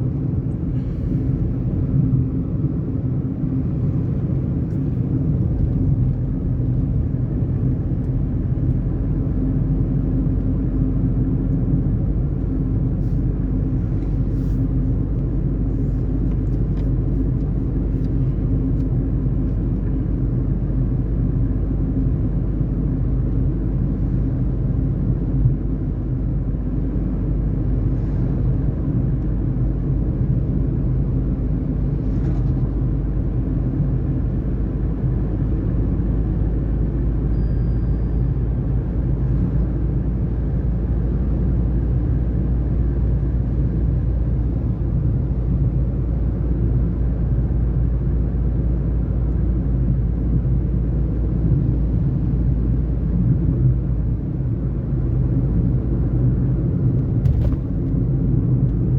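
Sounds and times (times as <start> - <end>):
car engine and road rumble: 0.0 - 58.9.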